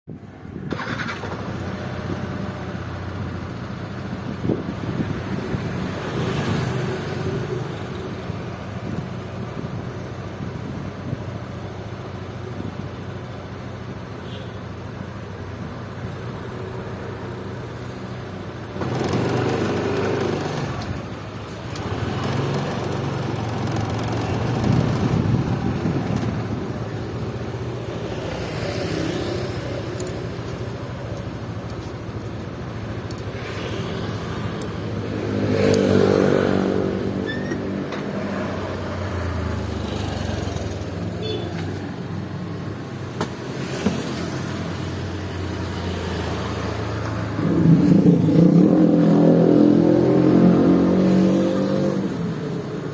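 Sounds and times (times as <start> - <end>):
vehicle engines running: 0.2 - 52.9.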